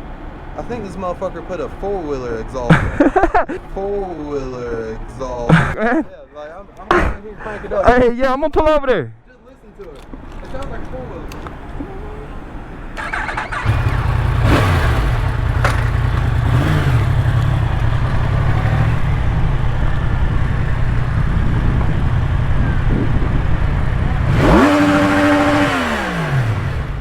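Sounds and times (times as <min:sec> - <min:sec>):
motorcycle engine rumbling: 0:10.2 - 0:27.0
motorcycle engine revving: 0:11.7 - 0:27.0.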